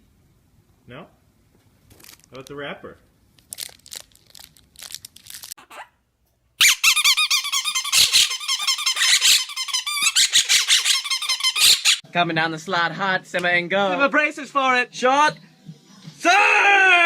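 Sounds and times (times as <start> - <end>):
candy wrapper crinkling: 1.9 - 2.5, 3.3 - 5.6
rapid high-pitched squeaks: 6.6 - 12.0.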